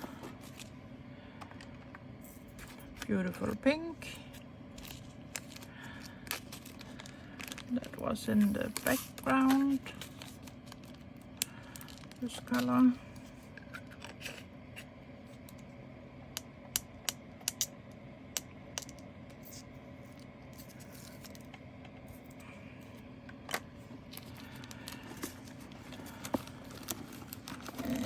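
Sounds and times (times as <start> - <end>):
electric fan humming: 0.0 - 28.0
plastic containers clicking and rattling: 23.5 - 28.0.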